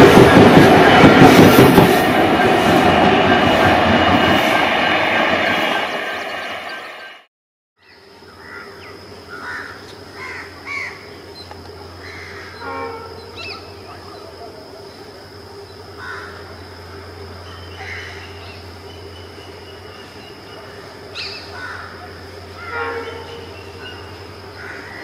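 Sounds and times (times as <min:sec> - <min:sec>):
passenger train rumbling: 0:00.0 - 0:07.3, 0:10.4 - 0:25.0
birds calling: 0:17.4 - 0:25.0.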